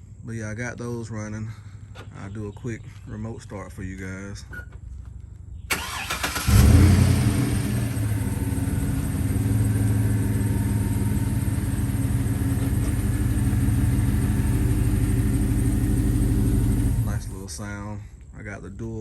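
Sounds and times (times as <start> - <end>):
car engine idling: 5.7 - 17.7.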